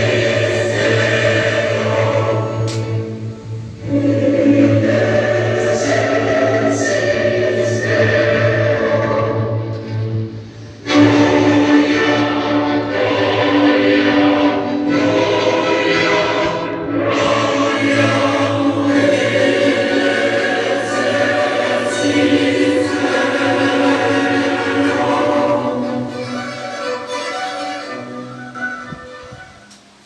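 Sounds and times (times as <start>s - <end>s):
choir singing held notes: 0.0s - 30.0s
music: 0.0s - 30.0s.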